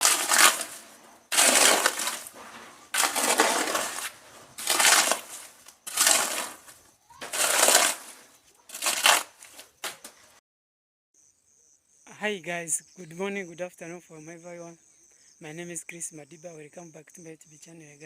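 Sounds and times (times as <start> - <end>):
stones rattling down: 0.0 - 9.6.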